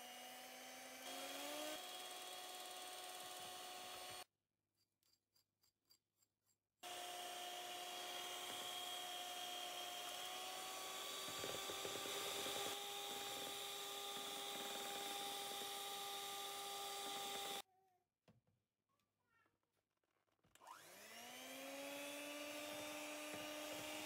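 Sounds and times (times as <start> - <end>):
electric hand mixer running: 0.0 - 4.3, 6.8 - 17.6, 20.6 - 24.0.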